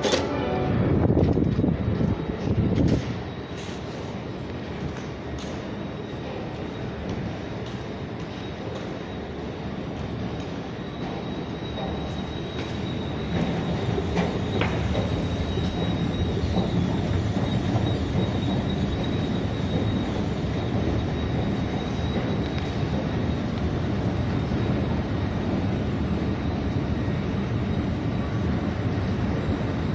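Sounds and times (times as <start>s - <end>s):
high thin whine: 0.0s - 2.1s
train wheels rumbling on rails: 0.0s - 29.9s.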